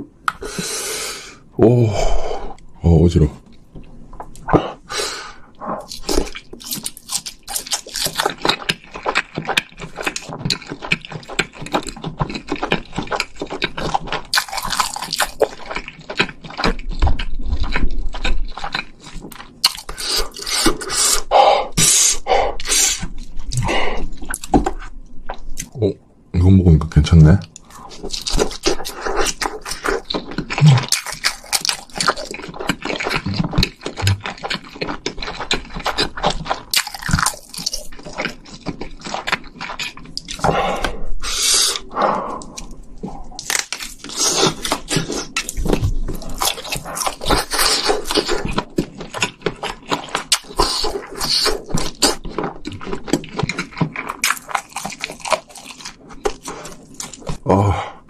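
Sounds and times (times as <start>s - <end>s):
mouth clicks and smacks: 0.2s - 0.6s, 27.5s - 34.6s
wet chewing and crunching: 5.5s - 21.3s, 22.5s - 25.8s, 26.9s - 57.8s.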